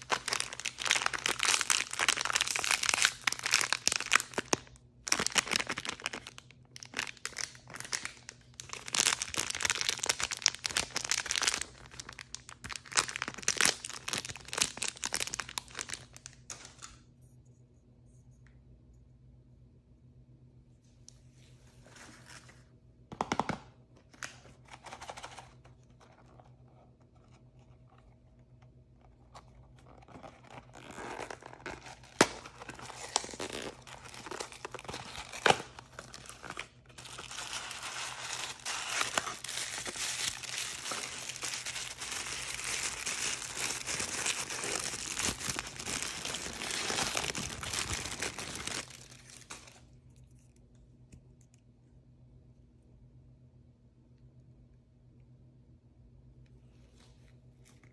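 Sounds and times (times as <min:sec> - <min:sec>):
packaging crinkling: 0:00.0 - 0:16.9, 0:29.0 - 0:49.9.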